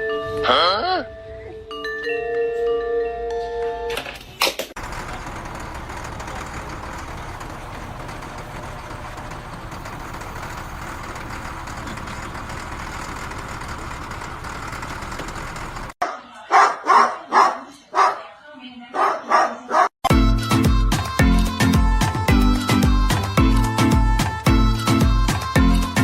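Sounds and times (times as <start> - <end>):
engine-like running noise: 4.8 - 16.0
dog barking: 16.0 - 18.3, 18.9 - 19.9.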